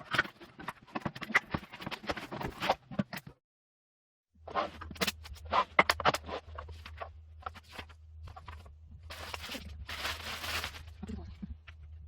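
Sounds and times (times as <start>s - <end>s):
packaging rustling and scraping: 4.5s - 11.2s.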